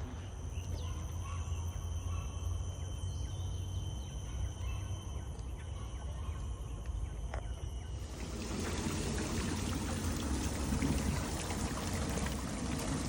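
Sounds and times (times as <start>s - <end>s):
faint bird chirps: 0.0s - 8.2s
high-pitched hum: 0.0s - 13.0s.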